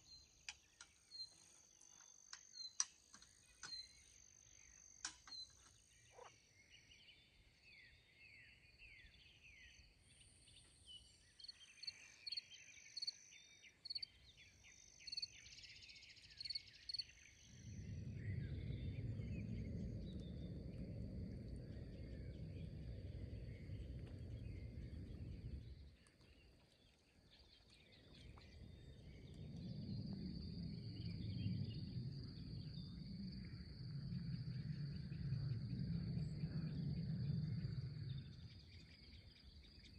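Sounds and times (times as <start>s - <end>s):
insects chirping: 0.0s - 39.9s
loud low rumbling: 17.4s - 26.0s.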